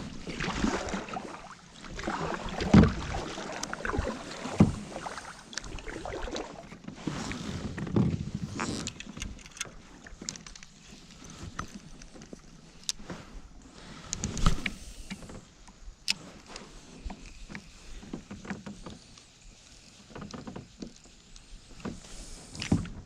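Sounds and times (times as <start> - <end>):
water splashing: 0.0 - 6.8.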